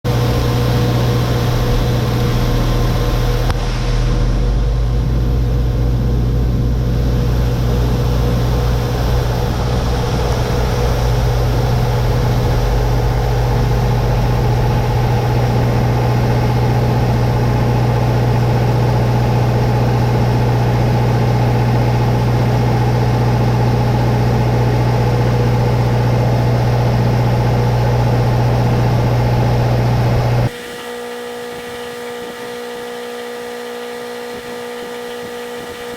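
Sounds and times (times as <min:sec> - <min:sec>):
heavy engine humming: 0:00.1 - 0:35.9.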